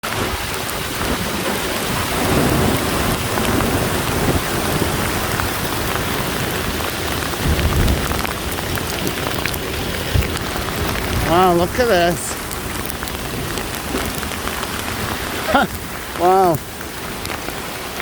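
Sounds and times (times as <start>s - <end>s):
hard rain pelting down: 0.0s - 18.0s
hailstones striking: 0.1s - 18.0s
low rumble: 7.1s - 11.3s.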